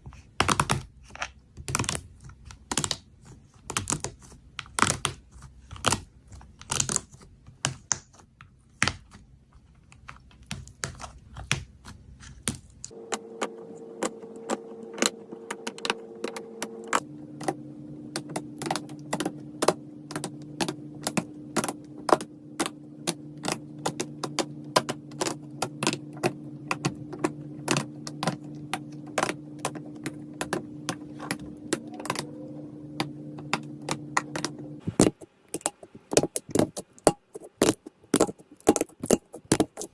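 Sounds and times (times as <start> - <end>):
steady low hum: 12.8 - 39.9.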